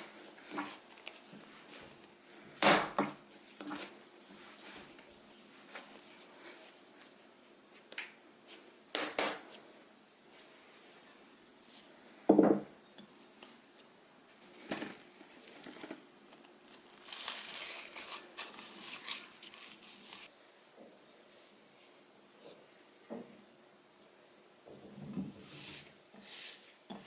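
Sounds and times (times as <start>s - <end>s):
crinkling rustle: 14.3s - 20.3s.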